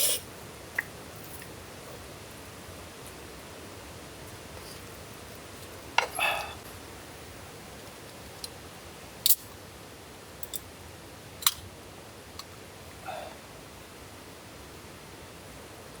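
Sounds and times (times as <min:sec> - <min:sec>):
rain hissing: 0:00.0 - 0:09.5.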